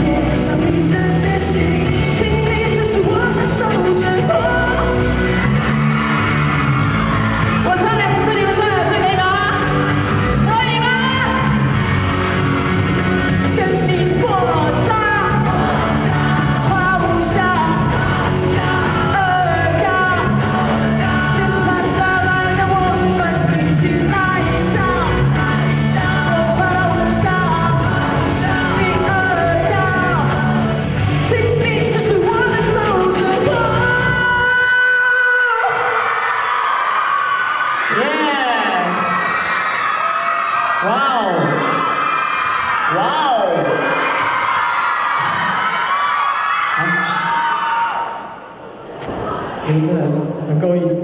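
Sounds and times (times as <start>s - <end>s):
bass line: 0.0s - 34.8s
lead vocal singing: 0.0s - 39.4s.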